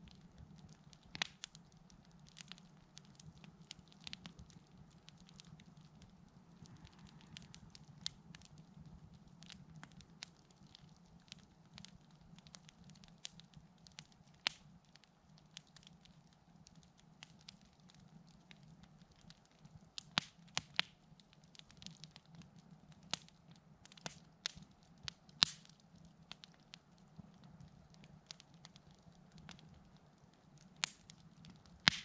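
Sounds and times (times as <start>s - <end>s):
campfire crackling: 0.0s - 32.0s
sharp fire pops: 25.3s - 25.8s, 30.8s - 32.0s.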